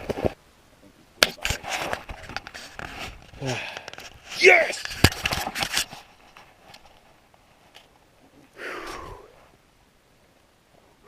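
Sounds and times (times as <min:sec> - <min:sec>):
person sighing: 0:03.4 - 0:03.9, 0:08.5 - 0:09.4.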